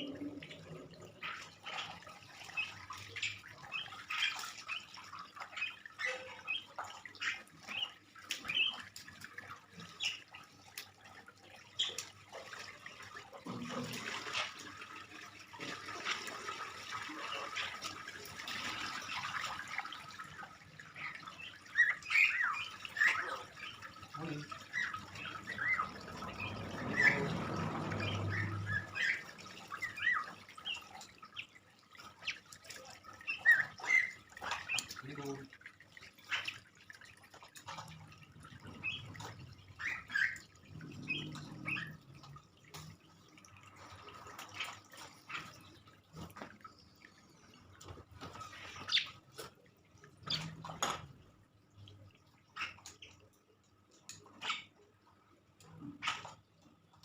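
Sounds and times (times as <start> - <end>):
starling chirping and squawking: 20.9 - 31.4, 33.2 - 35.0.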